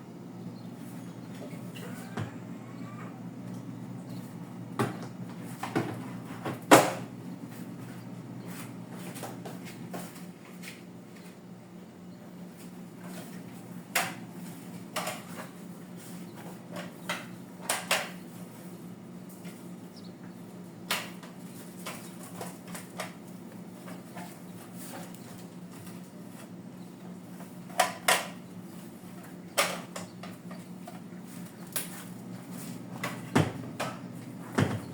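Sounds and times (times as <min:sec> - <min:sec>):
steady low hum: 0:00.0 - 0:34.9
containers knocking on fridge shelves: 0:33.0 - 0:34.9.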